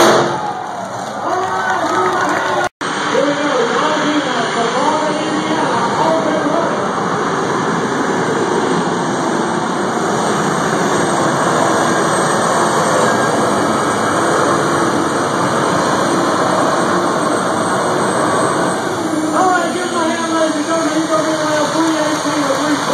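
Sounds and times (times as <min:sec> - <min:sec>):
pulling vehicle engine running: 0:00.0 - 0:22.9.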